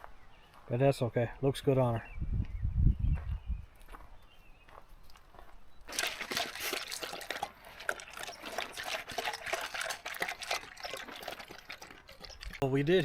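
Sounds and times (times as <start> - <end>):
water crackling and splashing: 5.9 - 12.6.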